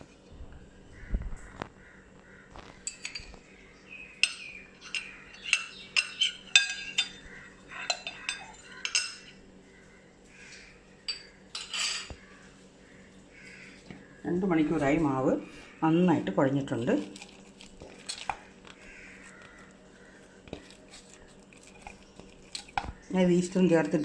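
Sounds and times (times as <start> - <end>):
utensil clinking against bowl: 2.9 - 3.4, 4.2 - 9.4, 17.0 - 19.7, 20.5 - 23.0.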